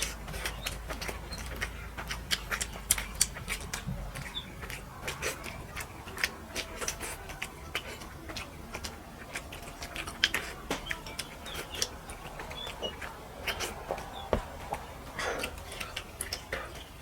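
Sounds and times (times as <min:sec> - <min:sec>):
chewing and lip-smacking: 0:00.0 - 0:17.0.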